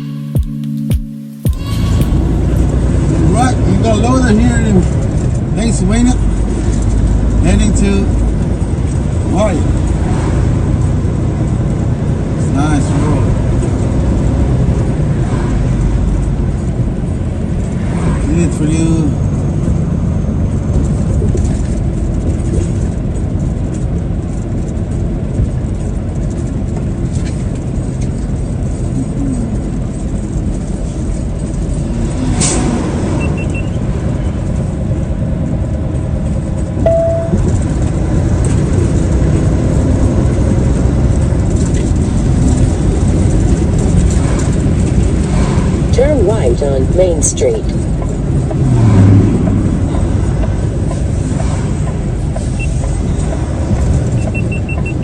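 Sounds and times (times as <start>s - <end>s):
short beep: 0.0s - 2.9s, 36.8s - 37.6s
truck engine and road rumble: 0.0s - 55.0s.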